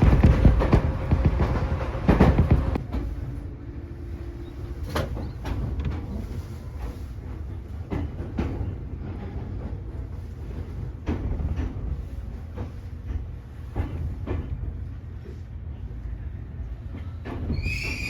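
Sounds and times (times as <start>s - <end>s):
wheels clacking over rail joints: 0.0s - 3.3s
train rumble inside car: 0.0s - 18.0s.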